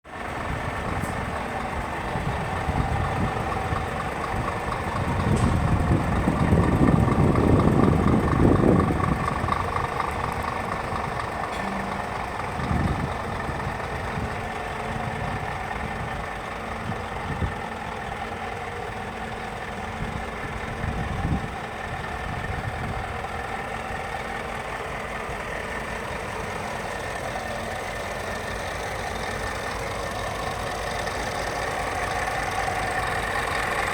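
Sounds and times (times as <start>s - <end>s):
diesel truck engine idling: 0.1s - 33.9s
light engine knocks: 2.2s - 14.2s.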